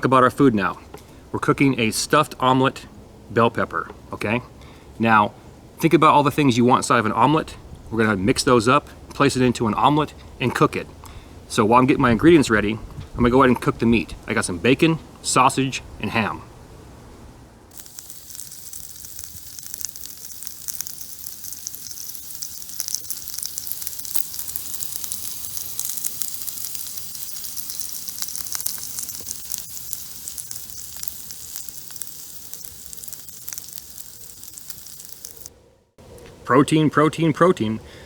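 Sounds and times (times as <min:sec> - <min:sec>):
meat sizzling in a pan: 0:17.7 - 0:35.5.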